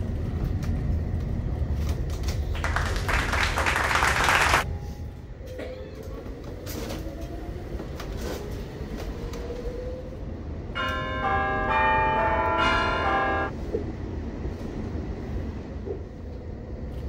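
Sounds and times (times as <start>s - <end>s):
chime of overlapping tones: 10.8s - 13.5s.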